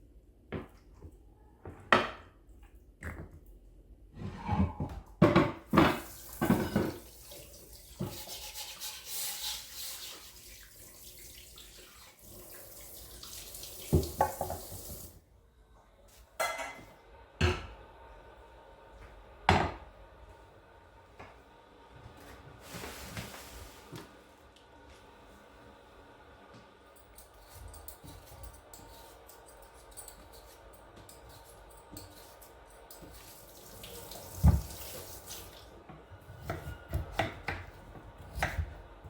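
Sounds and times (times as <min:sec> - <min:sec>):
dishes and utensils clattering: 0:04.2 - 0:07.1, 0:16.4 - 0:17.7
tap running into sink: 0:13.8 - 0:15.1, 0:33.8 - 0:35.6.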